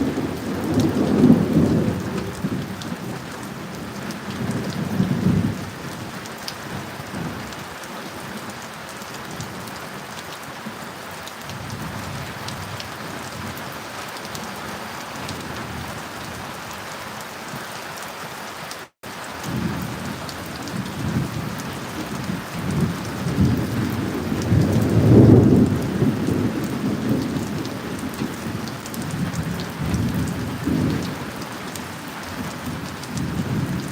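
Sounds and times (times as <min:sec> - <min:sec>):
rolling thunder: 0:00.0 - 0:06.1, 0:19.5 - 0:33.9
steady rain: 0:00.0 - 0:33.9.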